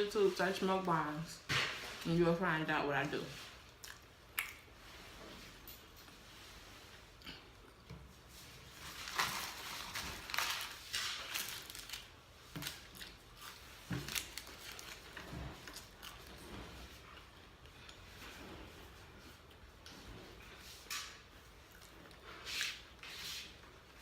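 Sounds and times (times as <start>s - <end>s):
crunchy chewing of food: 3.6s - 4.7s, 8.7s - 18.4s, 21.6s - 23.0s.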